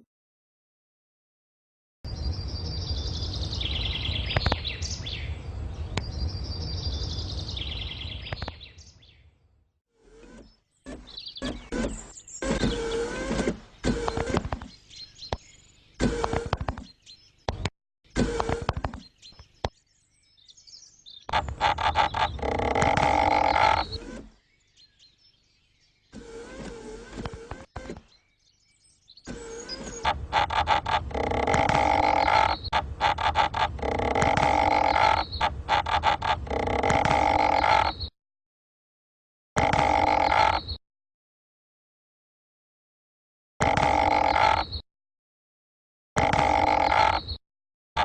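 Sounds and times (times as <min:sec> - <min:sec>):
bird chirping and trilling: 0:02.1 - 0:09.3, 0:10.3 - 0:38.1, 0:39.6 - 0:40.8, 0:43.7 - 0:44.8, 0:46.2 - 0:47.4
animal-like croaking call: 0:21.3 - 0:24.2, 0:29.6 - 0:38.1, 0:39.6 - 0:40.8, 0:43.6 - 0:44.8, 0:46.2 - 0:47.4.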